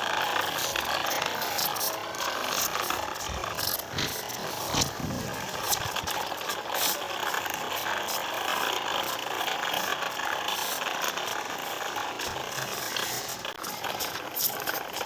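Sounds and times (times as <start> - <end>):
toy tractor clattering and clicking: 0.0 - 15.0.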